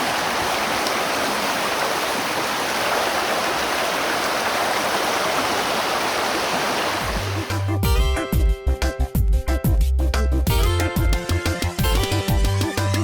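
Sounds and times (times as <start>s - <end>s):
river rushing over rocks: 0.0s - 7.6s.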